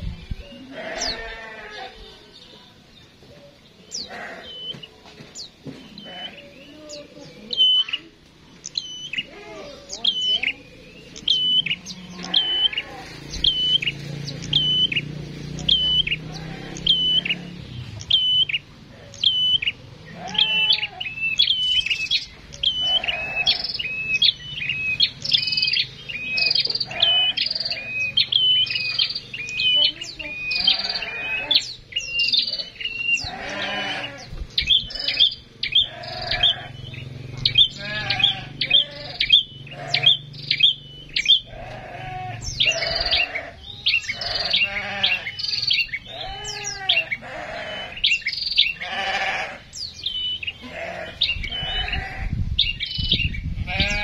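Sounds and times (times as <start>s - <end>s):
harsh wavering bird calls: 0.0s - 2.4s, 3.2s - 54.0s.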